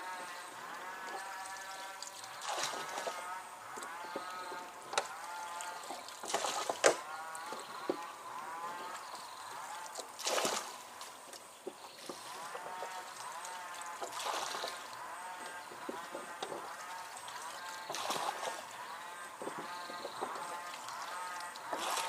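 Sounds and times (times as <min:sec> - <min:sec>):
river water splashing: 0:00.0 - 0:22.0
repeated animal calls: 0:12.1 - 0:22.0.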